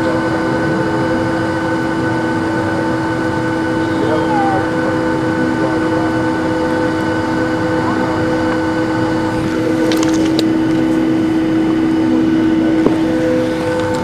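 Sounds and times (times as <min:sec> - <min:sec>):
cabin air rush: 0:00.0 - 0:13.9
steady multi-tone whine: 0:00.0 - 0:14.0.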